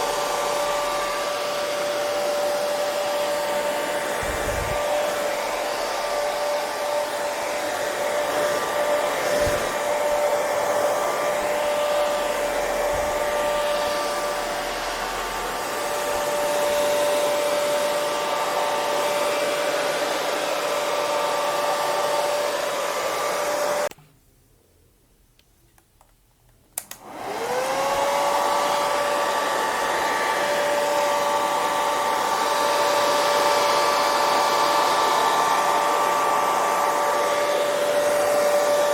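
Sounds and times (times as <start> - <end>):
hair dryer running: 0.0 - 23.9, 26.8 - 38.9
switch click: 26.8 - 27.0.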